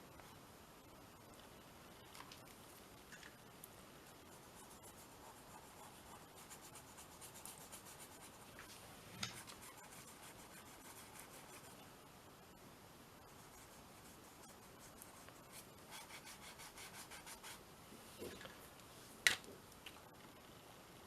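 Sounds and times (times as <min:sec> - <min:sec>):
pencil scratching on paper: 0:04.1 - 0:08.6, 0:09.2 - 0:11.8, 0:13.2 - 0:17.6.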